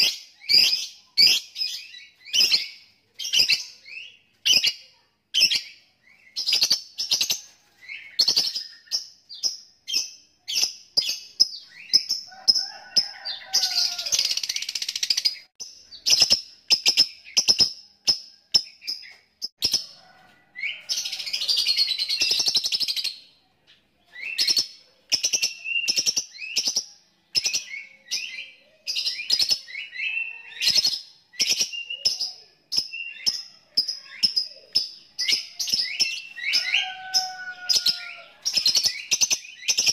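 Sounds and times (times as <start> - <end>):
lovebird chirping: 0.0 - 12.6.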